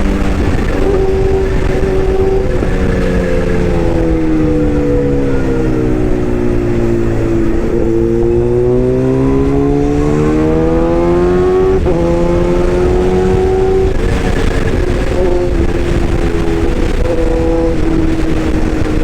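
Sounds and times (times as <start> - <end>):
excavator whine: 0.0 - 19.0.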